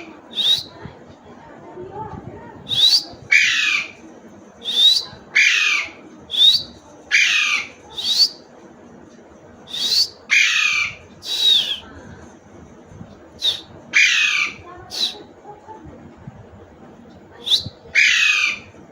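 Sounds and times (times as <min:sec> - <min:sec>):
parrot squawking: 0:02.8 - 0:04.0, 0:04.9 - 0:08.3, 0:09.7 - 0:11.8, 0:13.4 - 0:15.2, 0:17.4 - 0:18.7.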